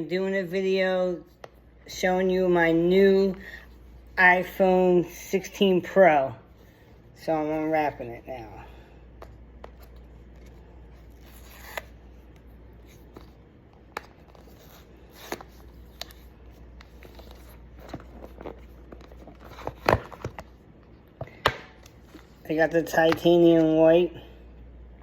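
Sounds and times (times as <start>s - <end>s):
packaging scraping: 9.9s - 12.2s.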